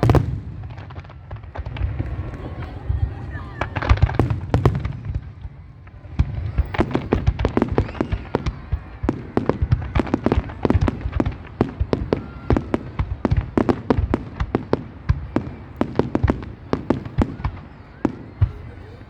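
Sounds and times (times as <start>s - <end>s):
fireworks bangs and cracks: 0.0s - 19.0s.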